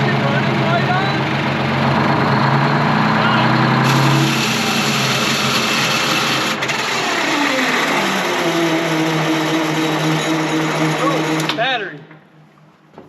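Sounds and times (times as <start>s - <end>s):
generator engine running: 0.0s - 11.8s
starter motor whirring: 3.8s - 11.6s.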